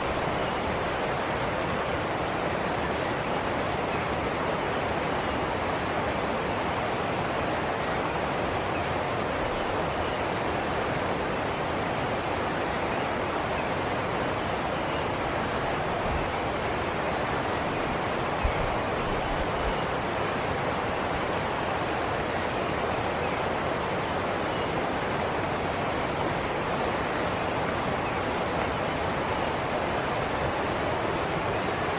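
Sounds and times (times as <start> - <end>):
small birds chirping: 0.0 - 1.6
forest stream flowing: 0.0 - 31.9.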